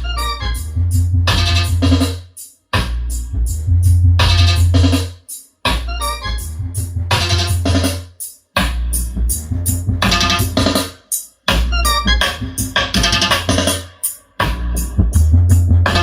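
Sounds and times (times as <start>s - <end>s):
electronic music with heavy bass: 0.0s - 16.0s.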